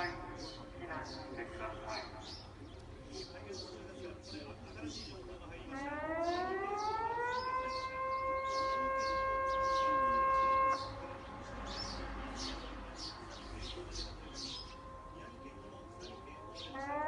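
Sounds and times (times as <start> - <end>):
warning siren wailing: 0.0 - 2.2, 5.6 - 11.2, 14.0 - 17.0
birds chirping: 0.0 - 17.0.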